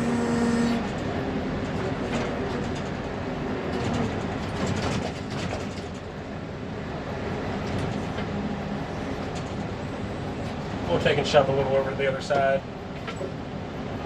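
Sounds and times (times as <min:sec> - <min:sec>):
diesel engine running under load: 0:00.0 - 0:14.0
clanks and rattles: 0:00.8 - 0:06.2, 0:07.6 - 0:08.3, 0:09.2 - 0:09.8, 0:12.9 - 0:13.4.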